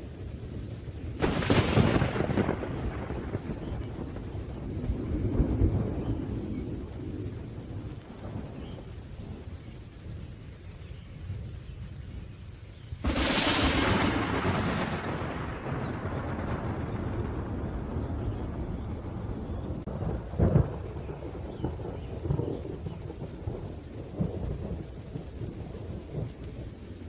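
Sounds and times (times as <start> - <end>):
low rolling thunder: 0.0 - 12.4, 13.0 - 27.0
rain hissing: 0.0 - 27.0
sharp thunderclap: 1.2 - 8.8, 13.0 - 26.6.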